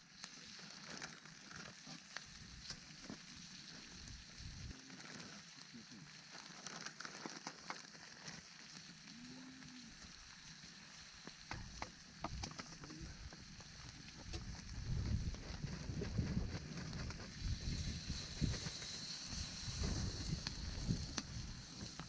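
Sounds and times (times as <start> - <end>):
campfire crackling and sizzling: 0.0 - 22.0
steady hiss: 0.0 - 22.0
sharp pops: 11.3 - 14.7.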